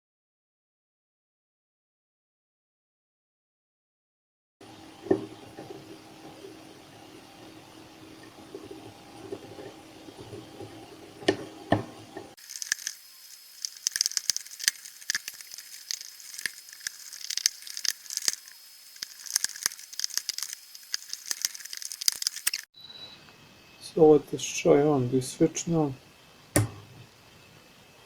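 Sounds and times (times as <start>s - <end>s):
screwdriver turning screws in plastic: 13.6s - 22.7s.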